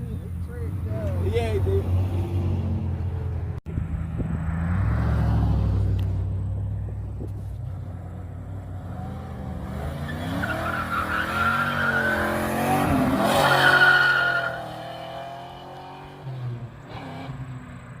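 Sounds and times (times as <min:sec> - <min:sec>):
car engine revving: 0:00.4 - 0:17.6
tires squealing: 0:08.9 - 0:17.6.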